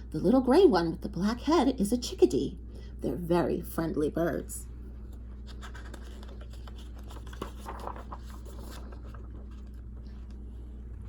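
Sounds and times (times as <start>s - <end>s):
steady low hum: 0.0s - 11.0s
book pages rustling: 5.0s - 11.0s.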